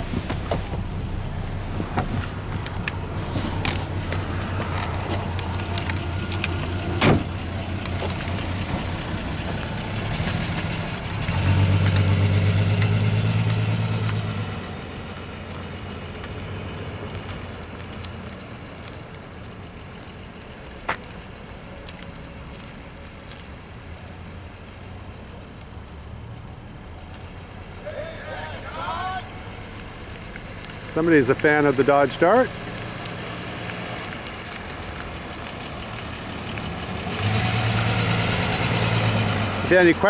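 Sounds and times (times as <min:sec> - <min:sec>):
car accelerating away: 0:00.0 - 0:19.0, 0:27.3 - 0:40.0
car engine idling: 0:00.0 - 0:40.0
car door slamming: 0:06.9 - 0:07.4.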